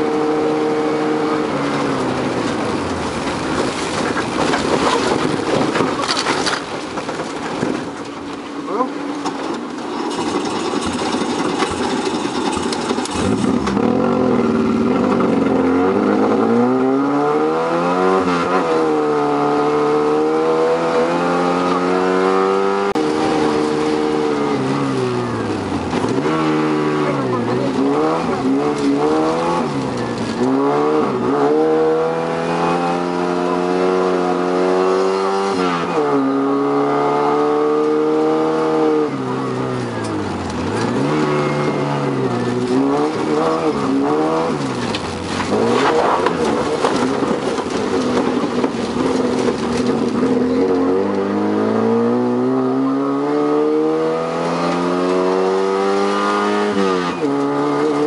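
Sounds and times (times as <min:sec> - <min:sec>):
rally car engine revving: 0:00.0 - 0:58.0
tyres on gravel: 0:01.4 - 0:16.7, 0:22.9 - 0:31.6, 0:39.0 - 0:51.4.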